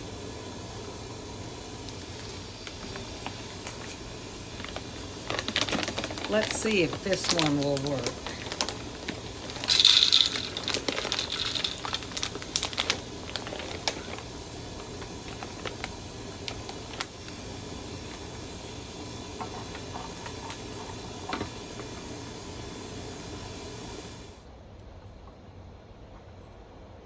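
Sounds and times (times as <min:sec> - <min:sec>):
steady low background noise: 0:00.0 - 0:27.0
bird feeder rustle: 0:02.0 - 0:17.4.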